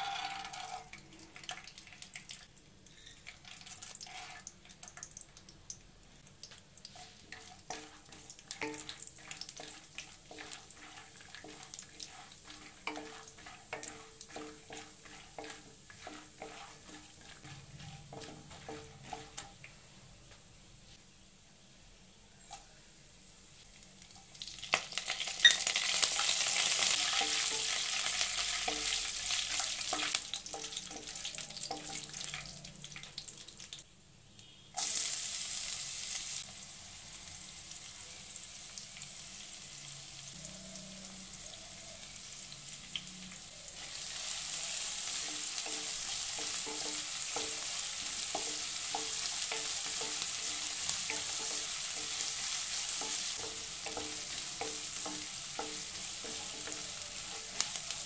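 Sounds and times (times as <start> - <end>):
spatula scraping pan: 0.0 - 1.0, 2.9 - 4.6, 6.9 - 19.6, 44.6 - 58.0
hot oil sizzling in pan: 0.0 - 21.0, 23.4 - 58.0.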